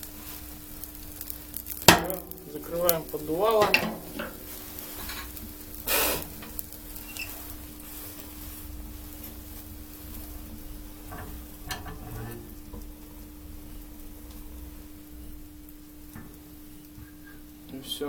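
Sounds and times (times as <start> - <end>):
firewood crackling: 0.0 - 18.0
steady hum: 0.0 - 18.0
stove door scraping shut: 3.5 - 8.4, 11.0 - 12.8.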